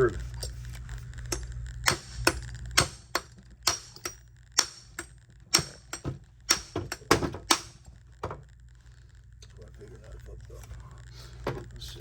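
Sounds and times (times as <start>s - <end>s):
hammer striking metal: 1.3s - 7.8s.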